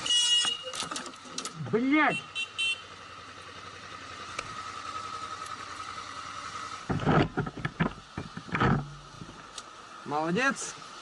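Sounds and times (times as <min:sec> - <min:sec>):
car road noise: 0:00.0 - 0:11.0.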